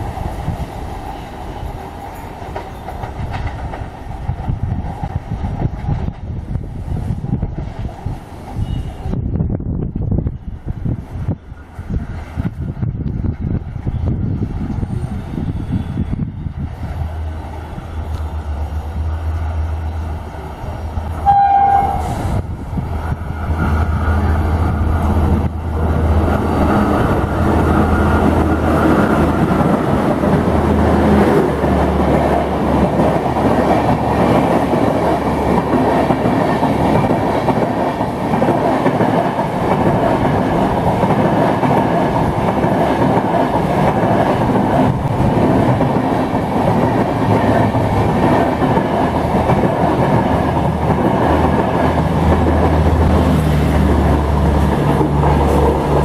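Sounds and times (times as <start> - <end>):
train passing at high speed: 0.0 - 56.0
wheel and rail noise: 0.0 - 56.0.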